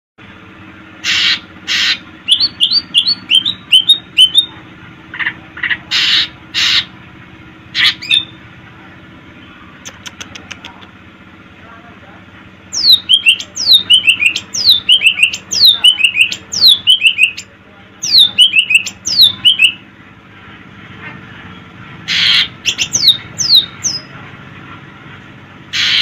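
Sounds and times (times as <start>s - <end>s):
harsh bird note: 1.0s - 4.5s, 5.9s - 7.0s, 22.1s - 24.0s, 25.7s - 26.0s.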